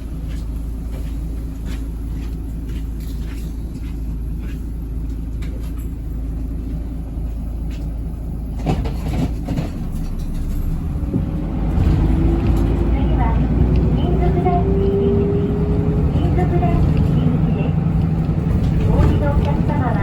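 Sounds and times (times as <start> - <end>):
bus engine drone: 0.0 - 20.0
knocks and clatters: 7.6 - 13.9.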